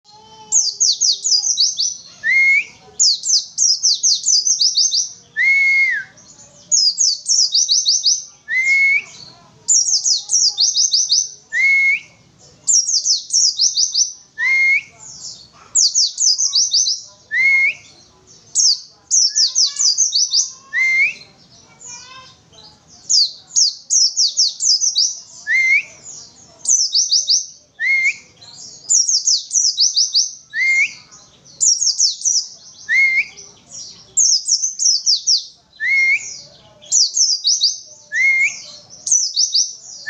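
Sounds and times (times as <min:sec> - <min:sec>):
bird singing rapid high notes: 0:00.5 - 0:40.0
lower slurred bird whistle: 0:05.4 - 0:06.2.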